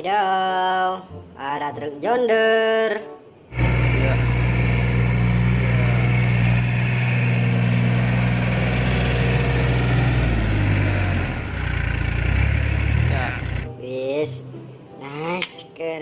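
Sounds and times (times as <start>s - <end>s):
tractor engine idling: 3.5s - 13.7s.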